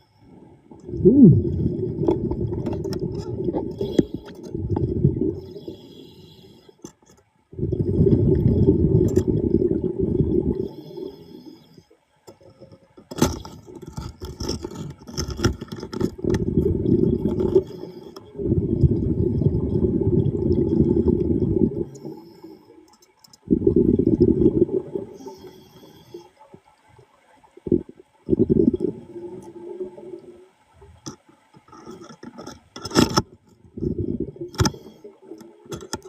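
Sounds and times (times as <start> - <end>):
diver's breath bubbles: 0.8 - 5.9, 7.5 - 11.2, 16.2 - 22.2, 23.5 - 25.3
underwater clicks: 31.0 - 36.0.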